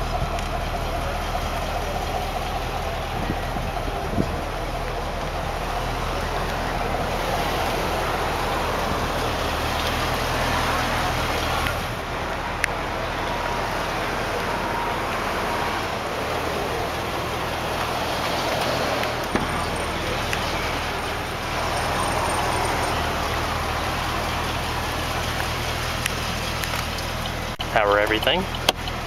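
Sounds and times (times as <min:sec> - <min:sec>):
car engine idling: 0:00.0 - 0:29.0
outdoor background rush: 0:00.0 - 0:29.0.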